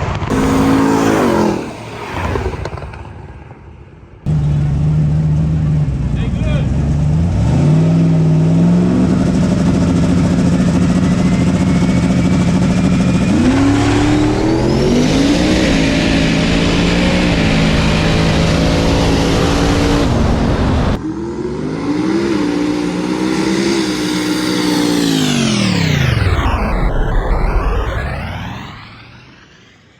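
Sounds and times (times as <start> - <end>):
race car engine shifting gears: 0.1 - 3.3
race car passing by: 0.3 - 3.7.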